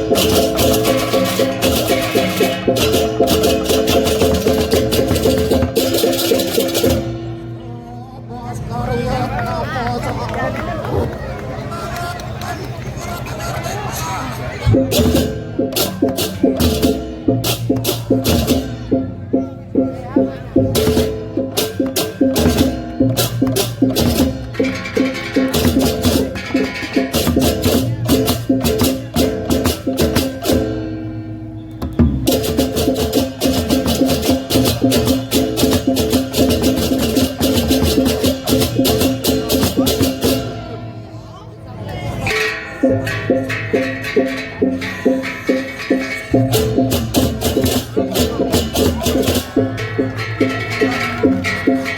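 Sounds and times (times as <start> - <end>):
gamelan metal strikes: 0.0 - 7.4, 42.2 - 51.9
metal gongs playing a pattern: 0.0 - 7.8, 41.9 - 51.9.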